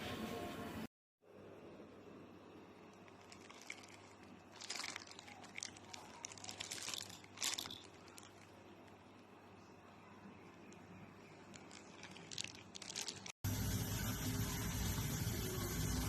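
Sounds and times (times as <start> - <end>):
plastic packaging crinkling: 2.9 - 9.0, 11.2 - 13.4.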